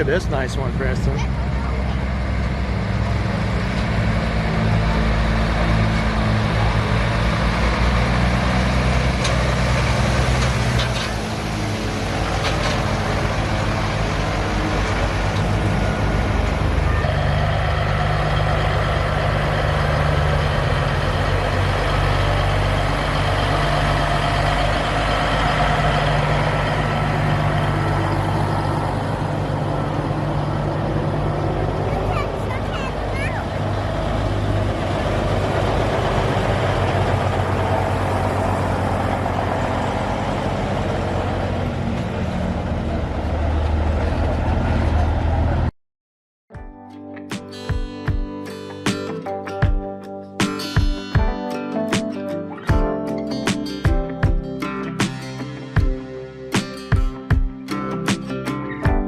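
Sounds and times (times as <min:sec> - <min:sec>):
truck engine running: 0:00.0 - 0:45.7.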